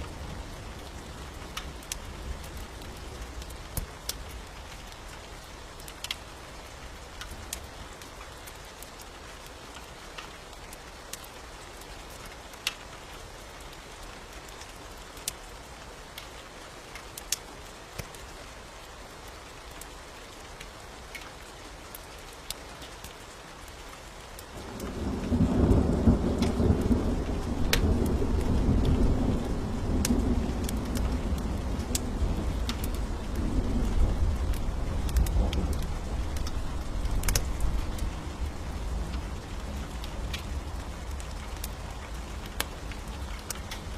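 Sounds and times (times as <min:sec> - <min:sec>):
steady rain: 0:00.0 - 0:43.9
thunder rumbling: 0:24.6 - 0:43.9.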